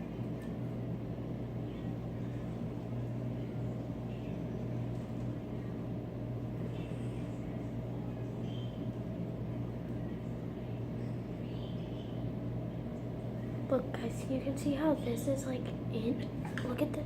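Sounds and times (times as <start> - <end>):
low droning motor hum: 0.0 - 17.0.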